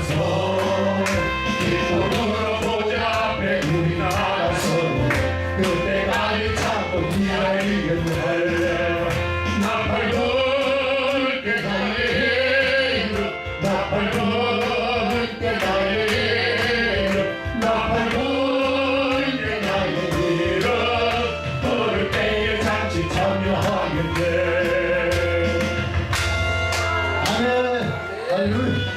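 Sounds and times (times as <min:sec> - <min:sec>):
voices singing a hymn: 0:00.0 - 0:25.9
instrumental accompaniment with beat: 0:00.0 - 0:28.9.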